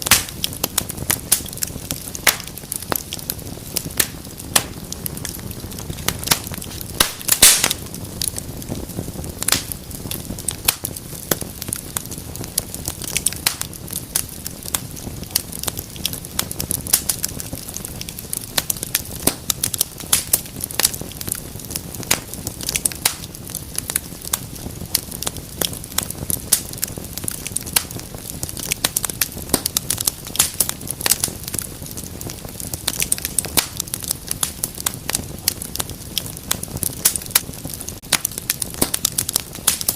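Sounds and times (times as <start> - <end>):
low rush of flames: 0.0 - 39.9
wood fire crackling and popping: 0.0 - 39.9.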